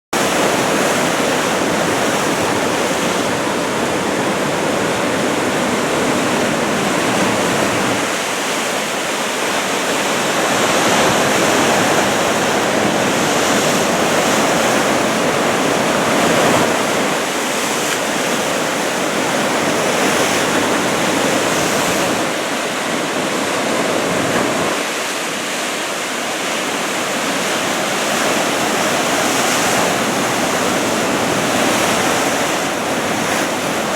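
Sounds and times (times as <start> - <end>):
ocean surf breaking: 0.2 - 33.9.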